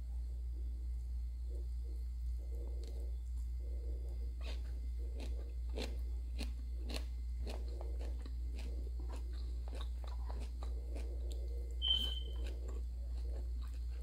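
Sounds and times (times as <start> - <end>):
chewing and crunching food: 1.4 - 14.0
short high squeak: 11.8 - 12.3.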